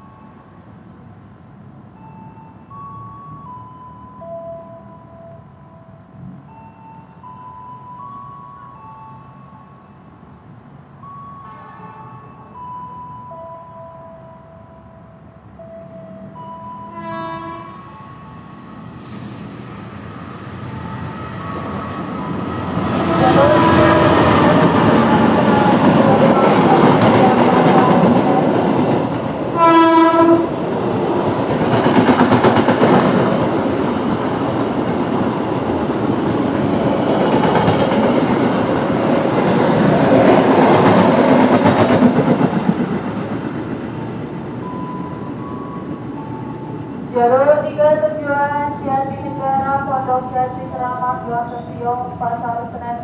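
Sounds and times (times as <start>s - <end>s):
train rumble and wheel clatter: 0.0s - 53.0s
train horn blast: 11.4s - 12.0s, 15.8s - 18.1s, 22.9s - 26.2s, 29.5s - 30.6s.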